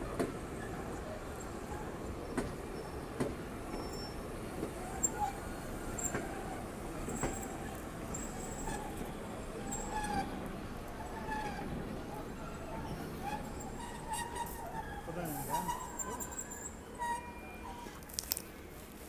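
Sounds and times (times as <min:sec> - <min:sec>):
tram rumble: 0:00.0 - 0:19.0.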